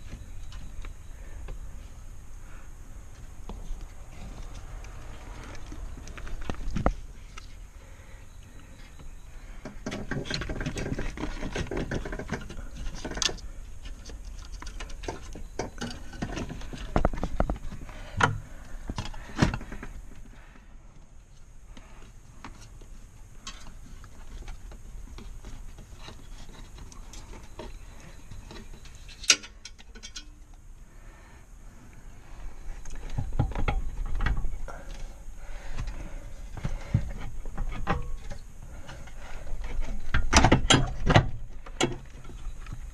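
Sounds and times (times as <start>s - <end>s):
knocks and rattles of car interior work: 39.5s - 42.1s.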